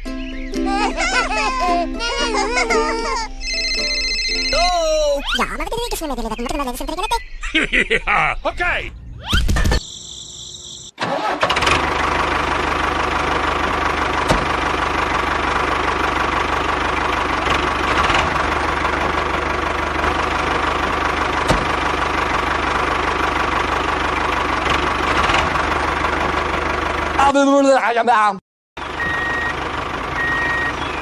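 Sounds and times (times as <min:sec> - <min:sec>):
engine starting and idling: 0:10.9 - 0:27.3, 0:28.8 - 0:31.0.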